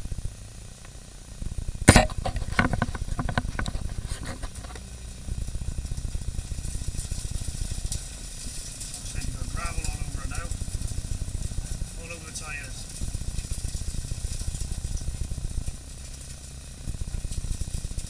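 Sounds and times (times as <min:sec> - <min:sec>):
car engine rumbling: 0:00.0 - 0:18.0
gravel striking car: 0:01.5 - 0:18.0
sharp loud bang: 0:01.9 - 0:02.6.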